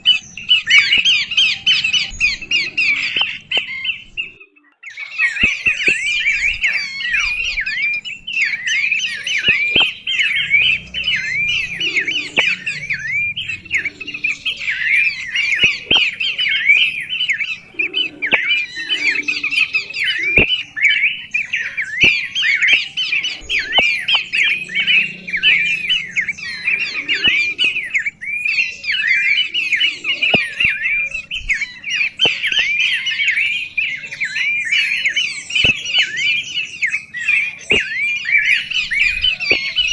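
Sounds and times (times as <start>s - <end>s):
songbird chattering song: 0.0s - 39.9s
sharp clicks: 5.4s - 7.7s, 8.3s - 20.6s, 22.0s - 28.1s, 37.6s - 38.0s.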